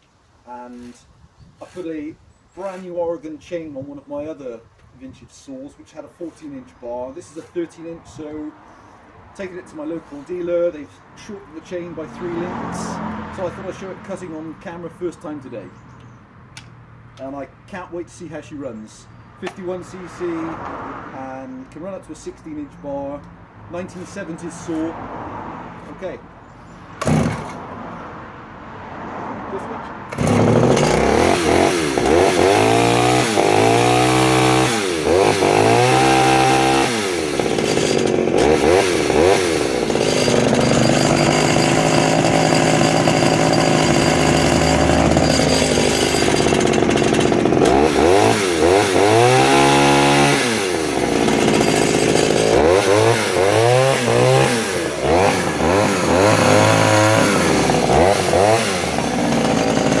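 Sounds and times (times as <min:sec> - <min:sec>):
chainsaw revving: 0:12.0 - 0:14.3, 0:27.0 - 0:27.7, 0:30.1 - 1:00.0.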